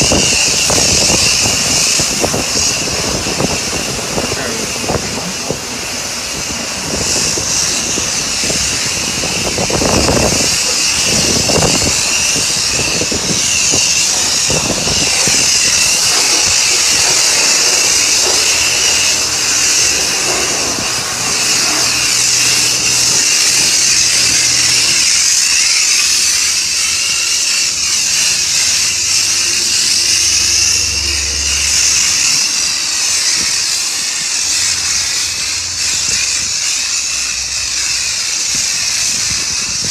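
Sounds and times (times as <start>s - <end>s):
pressure washer spraying car: 0.0s - 39.9s
low rumbling thumps: 29.0s - 33.9s.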